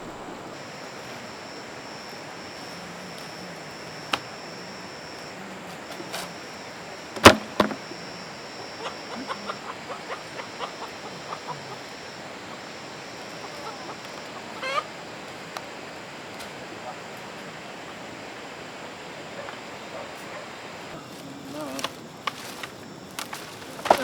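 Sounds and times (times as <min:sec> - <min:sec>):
chickens clucking: 0:02.4 - 0:22.1
loud sharp knock: 0:07.2 - 0:07.8
loud chicken call: 0:08.7 - 0:12.6, 0:13.4 - 0:15.0.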